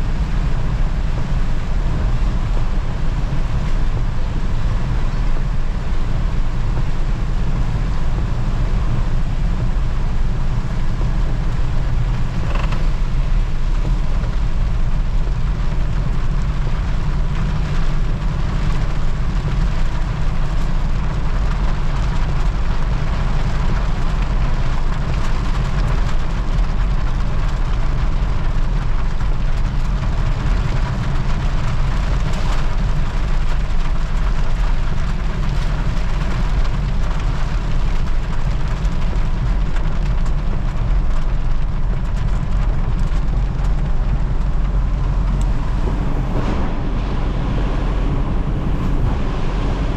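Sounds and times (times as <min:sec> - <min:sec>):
vehicle engine and road rumble: 0:00.0 - 0:49.9
creaks and rattles: 0:11.9 - 0:14.5.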